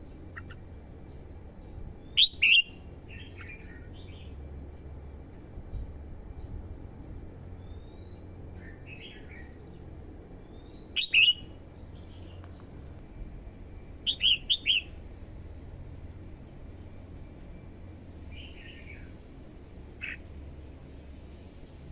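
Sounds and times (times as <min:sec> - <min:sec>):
bird singing: 0:00.0 - 0:04.9, 0:07.6 - 0:12.8, 0:13.8 - 0:15.0, 0:18.2 - 0:19.2, 0:20.0 - 0:20.8.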